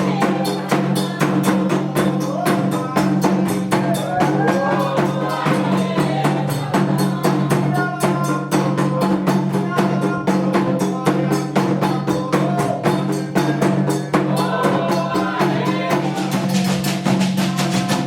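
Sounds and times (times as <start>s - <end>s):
group singing: 0.0s - 18.0s
hand drums and percussion: 0.0s - 18.0s.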